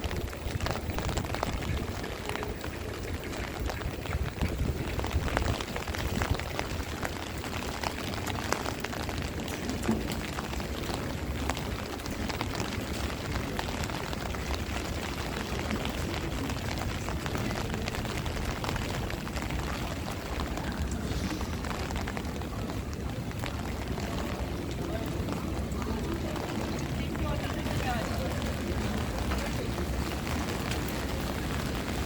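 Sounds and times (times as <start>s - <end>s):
rain drop ticks: 0.0s - 32.0s
wind buffeting microphone: 0.0s - 32.0s
heavy rain hiss: 14.1s - 32.0s.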